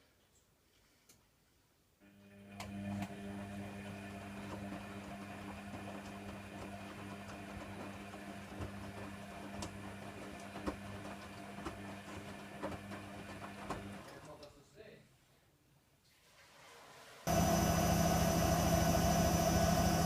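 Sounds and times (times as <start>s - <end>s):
washer dryer humming: 2.4s - 14.1s, 17.3s - 20.0s.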